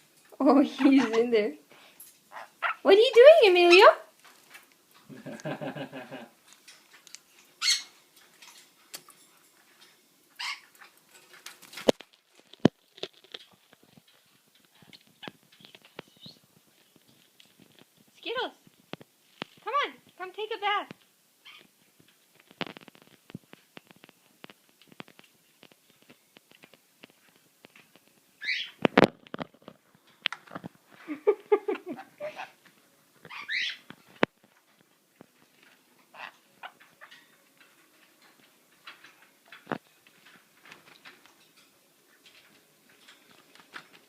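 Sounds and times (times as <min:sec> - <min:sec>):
parrot squawks: 0:02.3 - 0:04.0, 0:07.6 - 0:08.0, 0:10.4 - 0:10.8, 0:21.4 - 0:21.7, 0:28.4 - 0:28.8, 0:33.3 - 0:33.9, 0:36.1 - 0:37.2.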